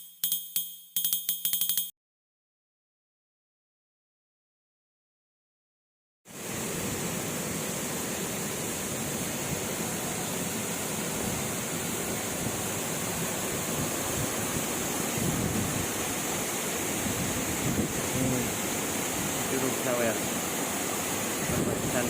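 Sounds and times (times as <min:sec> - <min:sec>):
waterfall roaring: 0:06.3 - 0:22.0.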